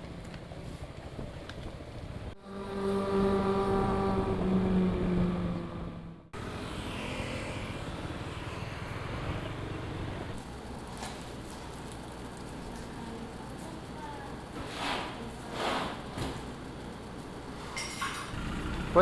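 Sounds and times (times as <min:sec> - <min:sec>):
road and wind noise: 0:00.0 - 0:12.6, 0:17.6 - 0:19.0
scooter engine: 0:01.9 - 0:14.6, 0:18.1 - 0:19.0.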